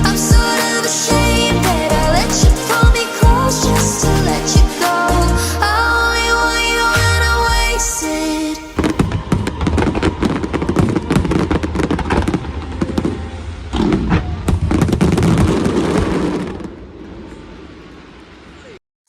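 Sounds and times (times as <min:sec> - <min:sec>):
low rumble: 0:03.2 - 0:14.8
fireworks crackling and banging: 0:06.9 - 0:18.7.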